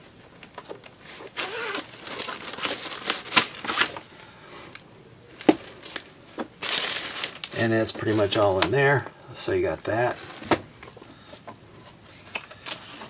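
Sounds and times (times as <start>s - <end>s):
paper and packaging rustling: 1.0s - 9.0s, 9.9s - 11.1s, 12.1s - 13.0s.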